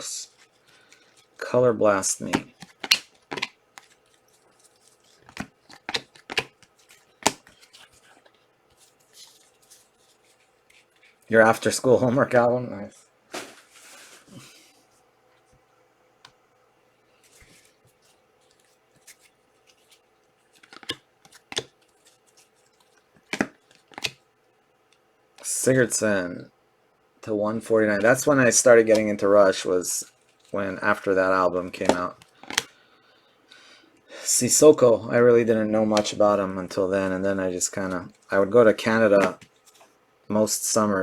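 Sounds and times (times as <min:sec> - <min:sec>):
soft card rustling: 0:00.0 - 0:12.4, 0:17.0 - 0:24.3, 0:27.7 - 0:32.8, 0:35.3 - 0:40.0
trading cards snapping and clicking: 0:02.3 - 0:04.0, 0:05.2 - 0:06.6, 0:20.6 - 0:21.7, 0:23.3 - 0:24.2.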